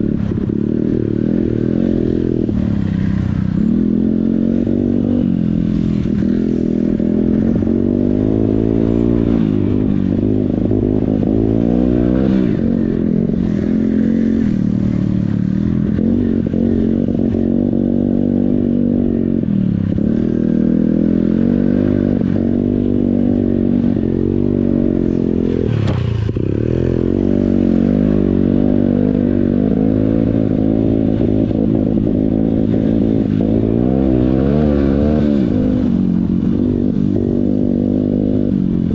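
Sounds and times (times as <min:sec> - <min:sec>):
motorcycle engine revving: 0:00.0 - 0:38.9
sharp knock: 0:25.8 - 0:26.2.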